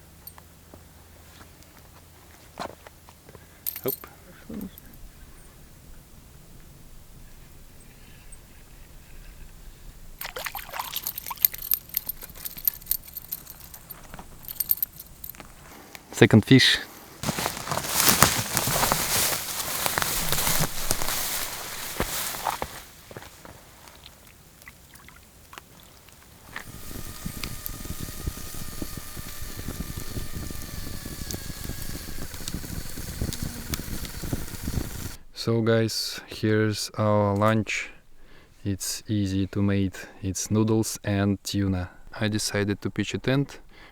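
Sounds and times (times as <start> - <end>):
sharp clicks and rattles: 3.6 - 5.0, 10.3 - 15.6, 26.5 - 35.2
water splashing and dripping: 10.2 - 12.2, 23.9 - 26.3
fire crackling and sizzling: 17.2 - 23.9, 25.9 - 35.2.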